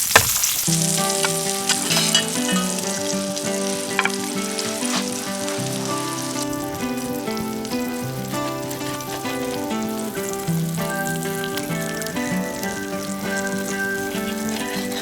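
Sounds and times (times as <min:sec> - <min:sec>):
fat popping: 0:00.0 - 0:02.9, 0:03.9 - 0:05.3
food sizzling in a frying pan: 0:00.0 - 0:15.0
instrumental music: 0:00.6 - 0:15.0.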